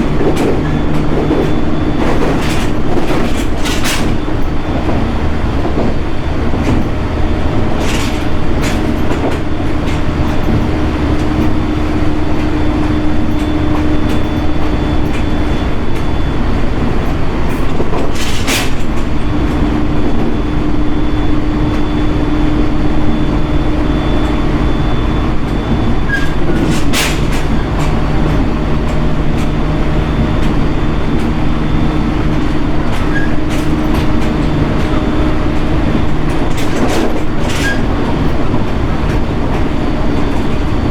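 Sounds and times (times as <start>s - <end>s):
train wheels and motors rumbling: 0.0s - 40.9s
sharp clicks from the track: 17.0s - 20.4s, 25.5s - 29.6s.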